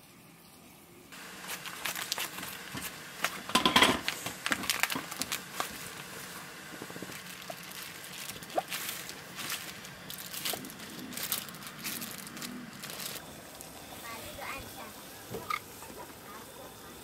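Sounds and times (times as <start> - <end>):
clicks knocks and crackling: 1.5 - 6.1.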